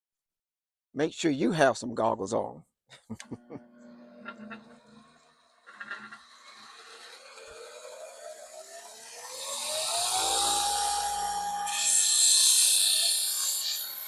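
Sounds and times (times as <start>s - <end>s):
belt sander motor whine: 3.5s - 14.0s.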